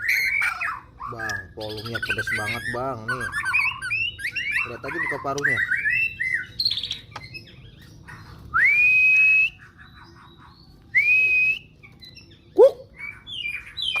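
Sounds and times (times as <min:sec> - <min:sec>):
bird singing chirps and whistles: 0:00.0 - 0:14.0.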